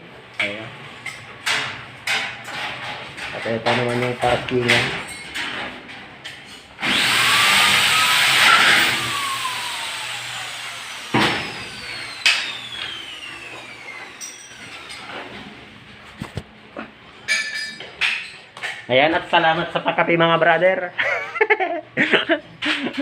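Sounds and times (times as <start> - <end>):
power tool motor whine: 6.8 - 15.3.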